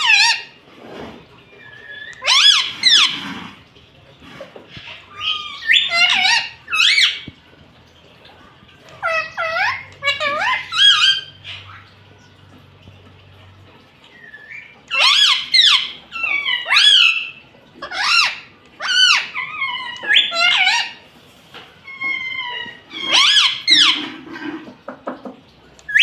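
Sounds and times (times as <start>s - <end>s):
parrot squawking: 0.0s - 0.6s, 1.5s - 3.5s, 4.4s - 7.3s, 8.9s - 12.0s, 14.2s - 21.0s, 21.8s - 24.7s.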